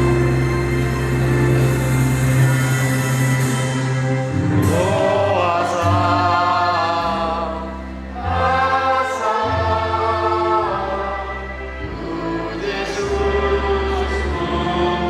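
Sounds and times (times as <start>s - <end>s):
low held accompaniment notes: 0.0s - 15.0s
congregation singing a hymn: 4.4s - 15.0s.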